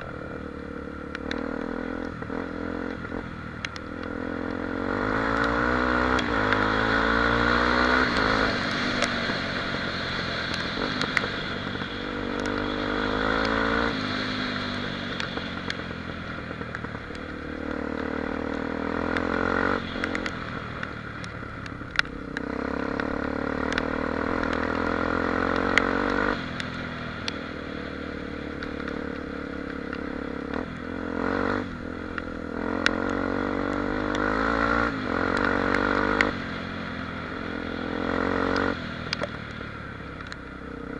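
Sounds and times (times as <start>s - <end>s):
motorcycle engine running: 0.0s - 40.9s
sharp clicks and knocks: 10.4s - 24.8s.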